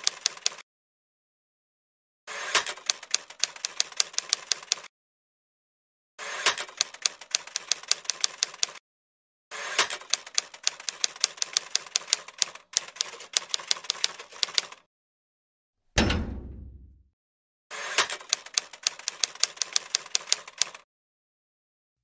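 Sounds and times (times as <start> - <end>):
typewriter keys clacking: 0.0 - 0.6, 18.0 - 20.8.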